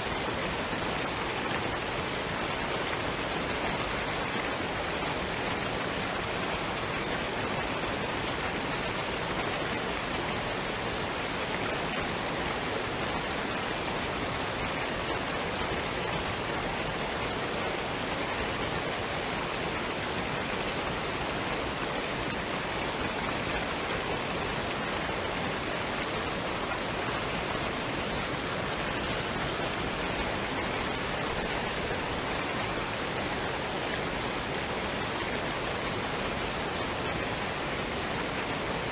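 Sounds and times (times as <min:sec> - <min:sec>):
waterfall and stream rushing: 0:00.0 - 0:38.9.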